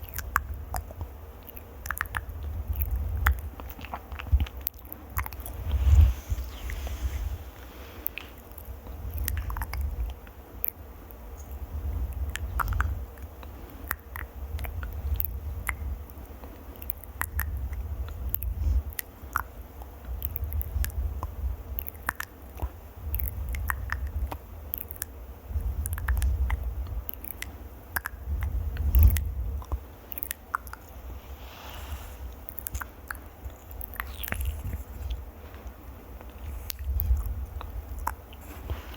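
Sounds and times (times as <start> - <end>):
crackles and clicks: 0.0 - 38.9
microphone handling rumble: 4.2 - 10.1.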